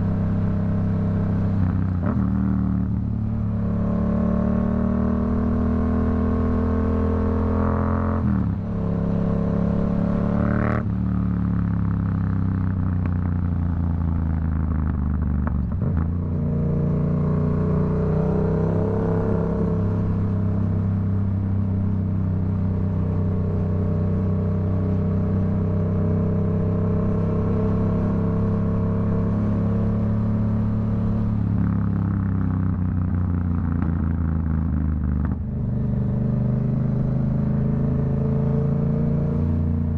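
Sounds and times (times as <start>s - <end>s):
motorcycle engine running: 8.5s - 38.2s.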